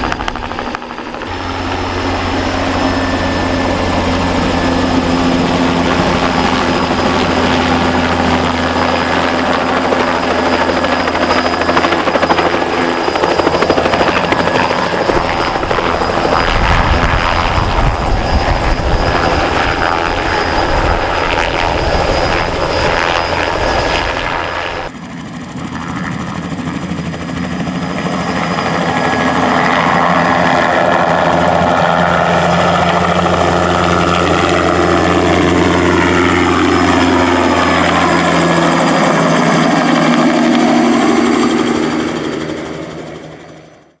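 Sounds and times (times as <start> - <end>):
helicopter flying: 0.0 - 44.0.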